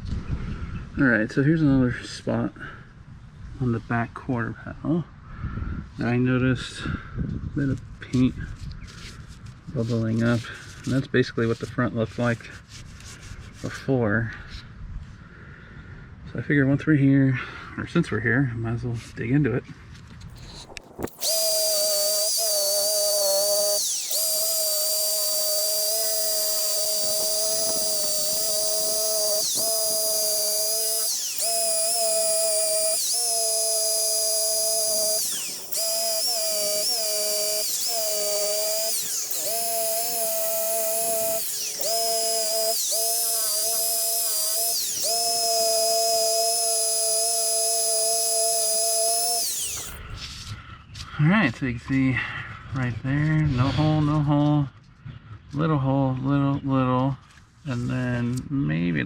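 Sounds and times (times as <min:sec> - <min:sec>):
drill spinning wire wheel on metal: 0:20.4 - 0:50.0.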